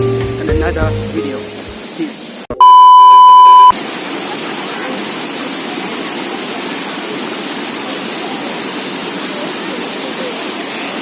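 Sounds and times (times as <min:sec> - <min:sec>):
waterfall rushing: 0:01.2 - 0:02.5, 0:03.7 - 0:11.0.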